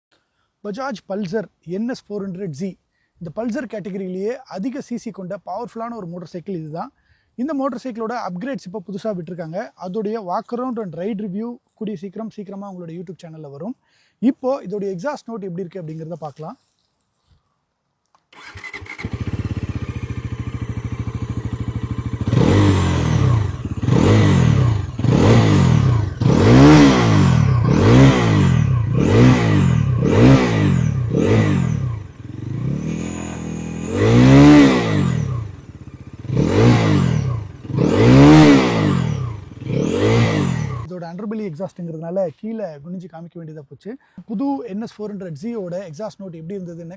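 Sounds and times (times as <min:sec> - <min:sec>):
motorcycle throttle blips: 0:18.3 - 0:40.9
motorcycle engine idling: 0:18.4 - 0:40.9.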